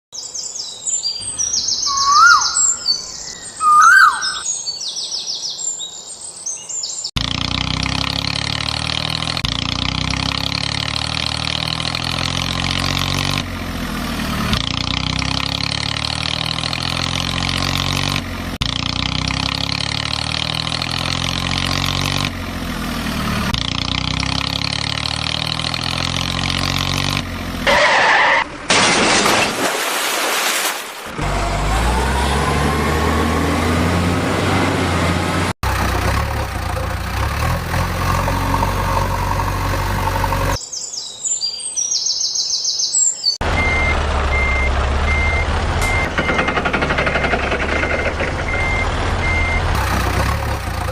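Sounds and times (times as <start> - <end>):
high bird-like chirps: 1.0 - 5.8, 40.6 - 43.4
short rising whistles: 1.6 - 4.5
heavy diesel machinery running: 31.2 - 40.6, 43.4 - 50.9.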